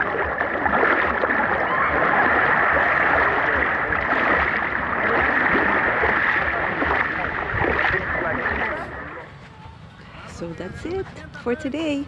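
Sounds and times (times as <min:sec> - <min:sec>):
sea water sloshing and fizzing: 0:00.0 - 0:09.2.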